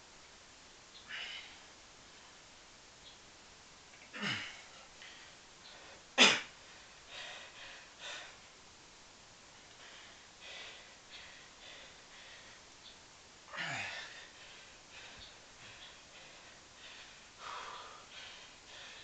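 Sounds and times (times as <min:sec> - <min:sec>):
man blowing out forceful breaths: 0:13.5 - 0:19.0.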